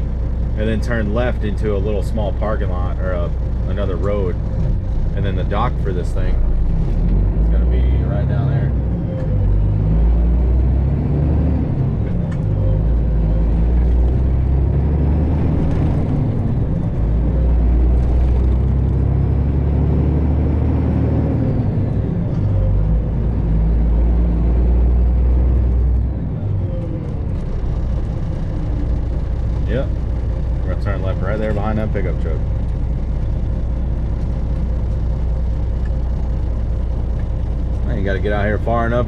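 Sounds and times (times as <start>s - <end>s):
truck diesel engine drone: 0.0s - 39.0s.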